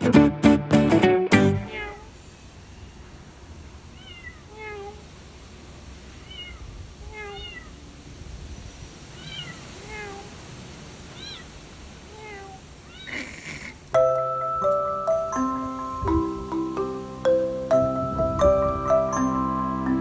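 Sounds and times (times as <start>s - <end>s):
kitten mewing: 1.6s - 2.1s, 4.0s - 5.0s, 6.2s - 7.7s, 9.2s - 10.3s, 12.1s - 13.9s.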